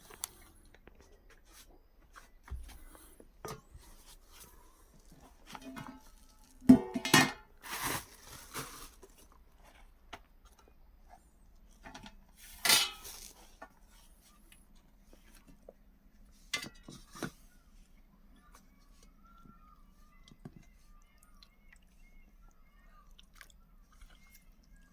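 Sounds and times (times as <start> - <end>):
dishes and utensils clattering: 5.5 - 8.0, 11.9 - 13.3, 16.5 - 17.4.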